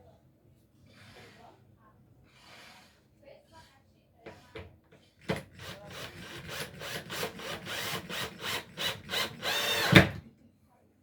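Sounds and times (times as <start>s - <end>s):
hand saw cutting wood: 5.3s - 10.2s.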